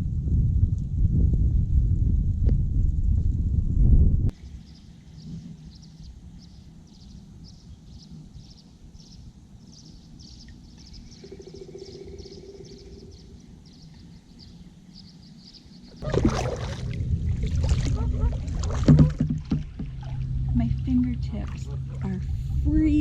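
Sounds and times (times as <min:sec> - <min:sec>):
low rumble: 0:00.0 - 0:08.5, 0:10.8 - 0:23.0
steady mid-pitched hum: 0:04.2 - 0:23.0
animal chirping: 0:10.9 - 0:13.9
knocking and rustling: 0:18.6 - 0:20.2.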